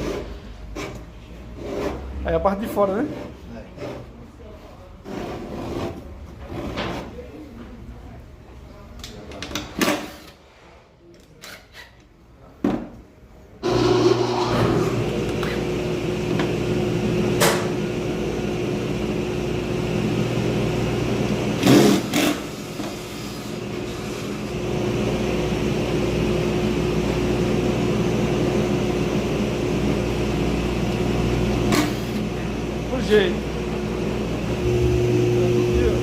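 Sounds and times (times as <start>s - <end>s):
electric motor hum: 13.6s - 36.0s.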